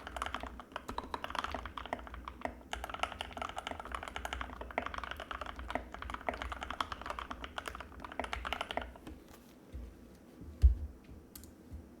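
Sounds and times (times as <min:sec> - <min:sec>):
mechanical keyboard typing: 0:00.0 - 0:09.0.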